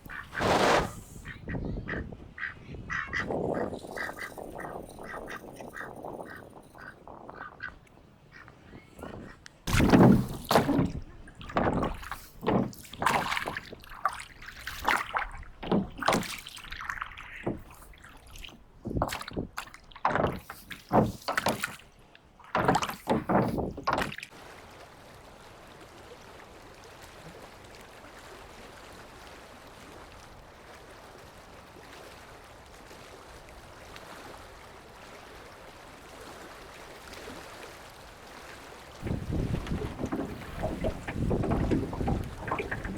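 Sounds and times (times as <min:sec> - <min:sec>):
water splashing and sloshing: 0:00.0 - 0:42.9.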